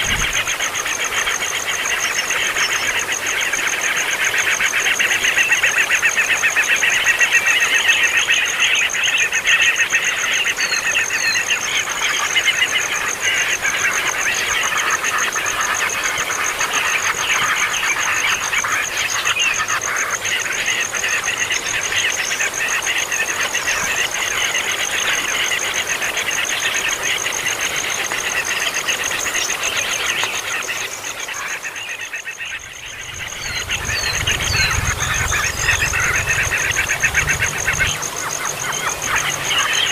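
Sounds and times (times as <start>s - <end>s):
nestling birds begging calls: 28.3s - 39.9s.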